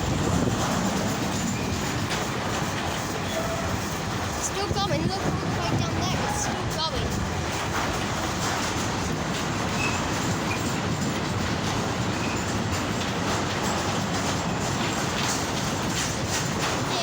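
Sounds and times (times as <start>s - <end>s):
train wheels rumbling on rails: 0.0s - 17.0s
high wheel squeals: 9.7s - 10.8s.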